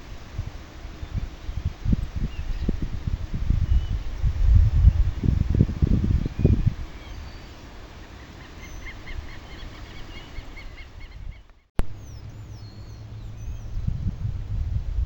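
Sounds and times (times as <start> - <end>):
low wind rumble: 0.0 - 15.0
sliding whistled bird calls: 6.4 - 13.8.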